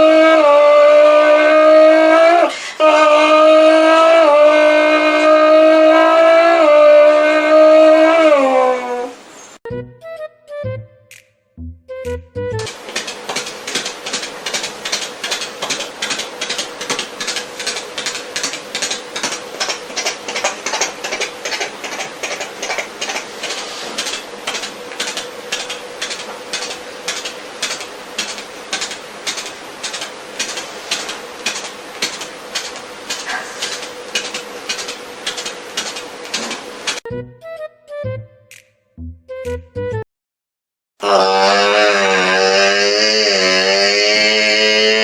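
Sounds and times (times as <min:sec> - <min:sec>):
beatboxer hissing strokes: 0:14.5 - 0:34.4.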